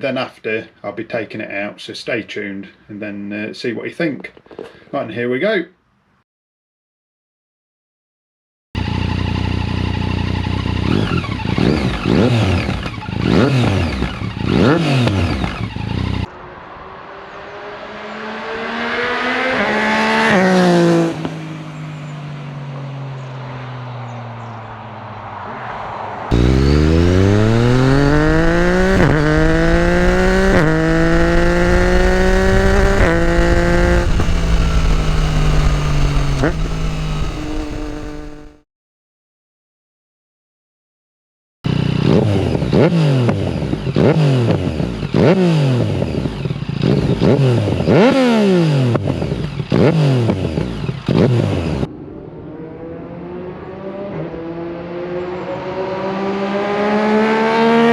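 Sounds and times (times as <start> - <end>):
motorcycle engine revving: 8.8 - 16.3, 17.8 - 21.4, 26.3 - 38.6, 41.7 - 51.9, 52.7 - 57.9
motorcycle accelerating through gears: 8.8 - 16.4, 17.0 - 24.5, 26.3 - 38.6, 41.7 - 57.9.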